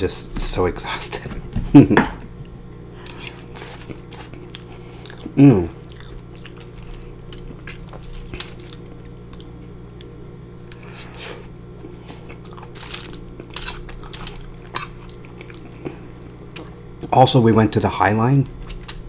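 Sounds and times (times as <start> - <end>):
chewing and mouth sounds: 2.2 - 16.9.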